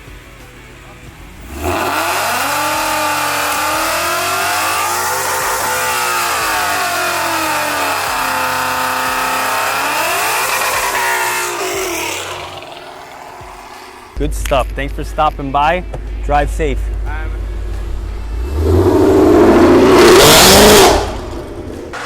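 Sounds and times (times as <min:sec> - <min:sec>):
car engine revving hard: 0:01.4 - 0:14.2, 0:17.6 - 0:22.0.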